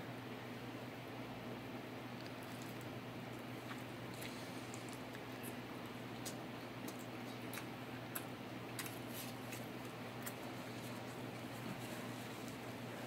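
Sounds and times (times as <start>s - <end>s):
steady low hum: 0.0s - 13.0s
chewing with wet mouth clicks: 2.2s - 11.5s.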